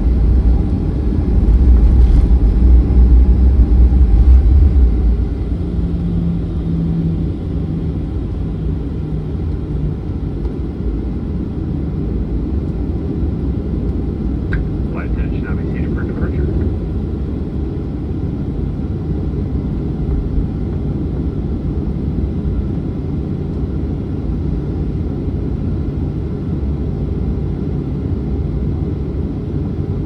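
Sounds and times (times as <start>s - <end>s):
jet engines rumbling: 0.0s - 25.6s.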